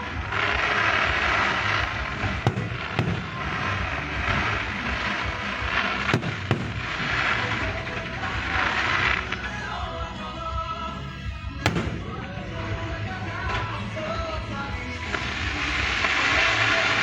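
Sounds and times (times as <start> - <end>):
firework bangs: 0.0 - 9.7, 11.5 - 17.0
fireworks crackling hiss: 0.0 - 9.8, 11.0 - 17.0.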